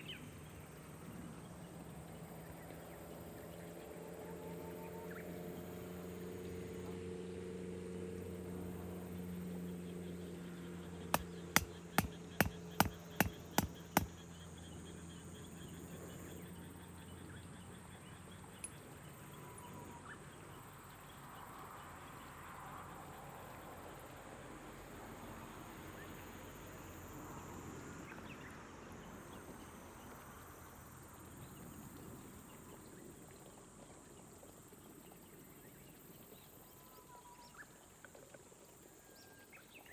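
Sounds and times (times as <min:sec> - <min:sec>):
sharp clicks: 0:11.2 - 0:14.1.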